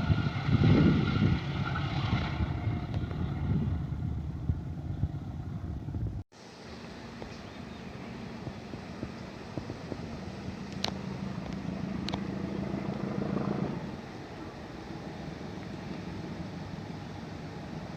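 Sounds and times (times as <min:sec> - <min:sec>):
wind on microphone: 0:00.0 - 0:06.2, 0:08.1 - 0:14.2
diesel locomotive engine drone: 0:00.0 - 0:17.9.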